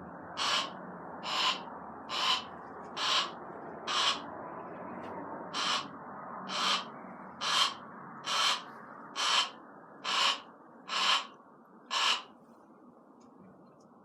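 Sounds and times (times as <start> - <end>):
owl hissing: 0.4 - 3.3, 3.9 - 4.2, 5.6 - 5.9, 6.5 - 11.3, 11.9 - 12.3.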